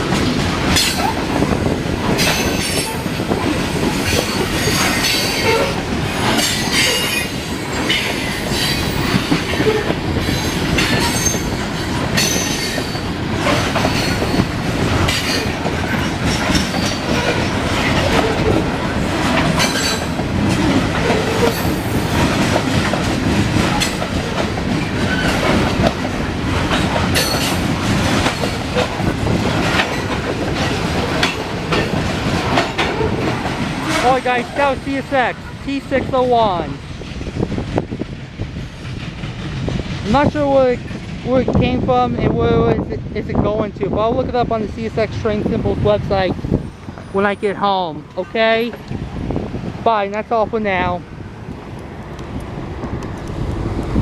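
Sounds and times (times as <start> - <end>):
wheels clicking over rails: 0.0 - 34.8
train cars rumbling past: 0.0 - 54.0
wheel squeals: 4.0 - 11.6.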